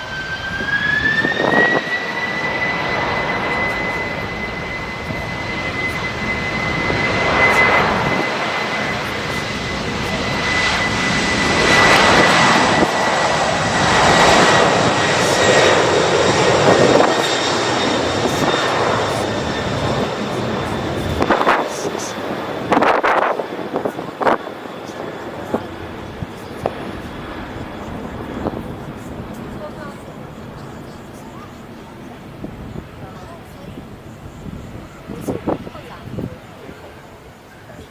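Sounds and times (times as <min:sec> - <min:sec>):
airplane engines roaring: 0:00.0 - 0:37.9
high steady engine whine: 0:00.0 - 0:37.9.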